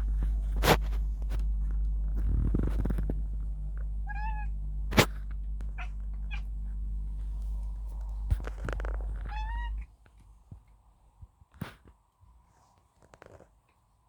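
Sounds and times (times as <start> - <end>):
cat calling: 4.0 - 6.9, 8.0 - 9.8.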